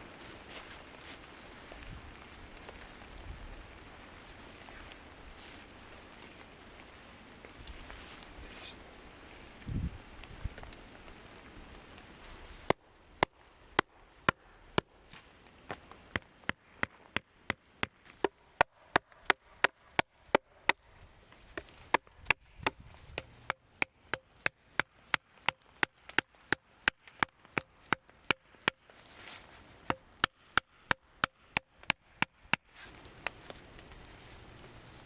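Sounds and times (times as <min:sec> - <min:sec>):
chopping on wood: 0:15.7 - 0:28.9, 0:29.8 - 0:33.4.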